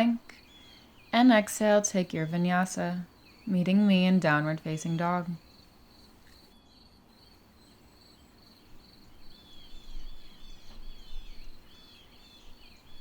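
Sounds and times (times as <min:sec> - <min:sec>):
bird chirping: 0:00.0 - 0:13.0
insects trilling: 0:00.4 - 0:10.4.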